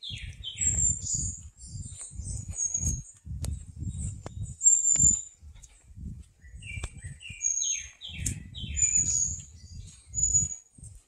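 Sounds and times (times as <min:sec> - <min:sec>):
birds whistling: 0:00.0 - 0:03.2, 0:04.4 - 0:05.4, 0:06.4 - 0:10.7
low rumbling thuds from walking: 0:00.2 - 0:11.0.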